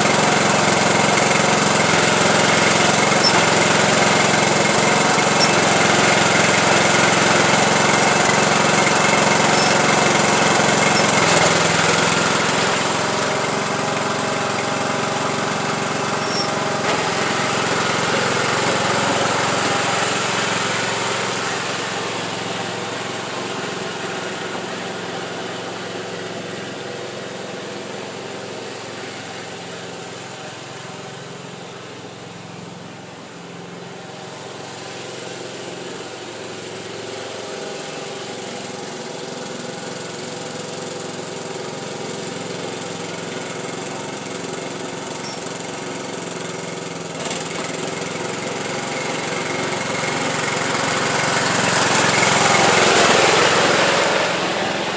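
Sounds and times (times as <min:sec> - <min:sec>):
riding lawn tractor engine running: 0:00.0 - 0:54.9.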